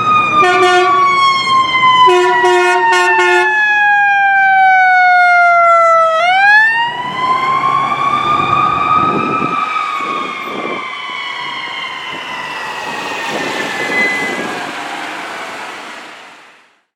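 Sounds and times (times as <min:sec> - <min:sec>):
ambulance siren wailing: 0:00.0 - 0:16.7
low vehicle rumble: 0:06.8 - 0:16.7.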